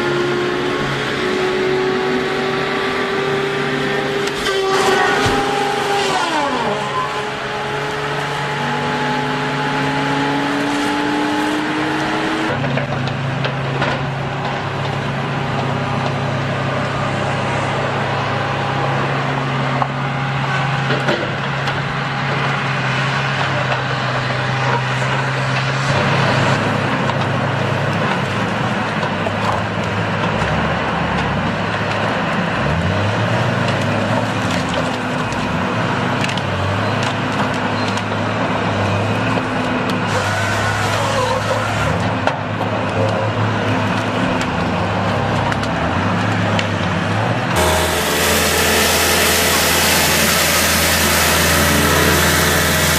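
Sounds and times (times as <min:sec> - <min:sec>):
machinery engines running: 0:00.0 - 0:52.9
wood cracking and splintering: 0:24.7 - 0:52.9.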